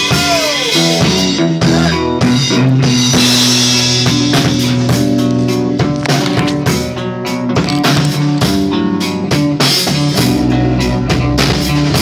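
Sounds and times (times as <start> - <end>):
bass guitar: 0.0 - 12.0
drum kit: 0.0 - 12.0
electric guitar: 0.0 - 12.0.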